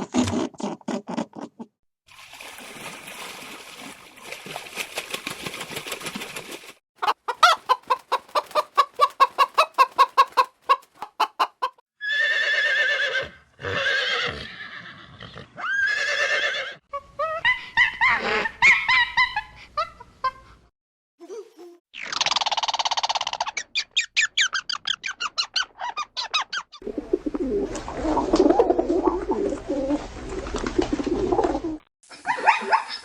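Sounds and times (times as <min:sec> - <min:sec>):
chickens clucking: 0:07.0 - 0:11.8.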